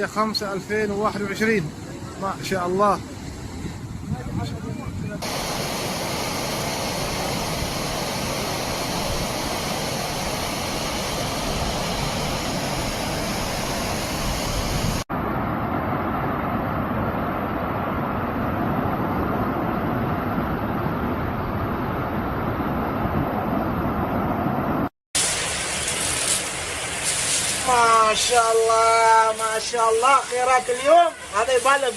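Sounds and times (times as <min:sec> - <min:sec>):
floodwater rushing: 0:05.2 - 0:15.1, 0:25.2 - 0:31.9.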